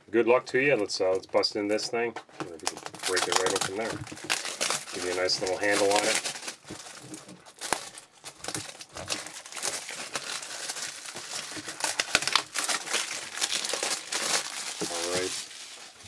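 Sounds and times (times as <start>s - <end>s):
packaging crinkling and tearing: 2.4s - 16.0s.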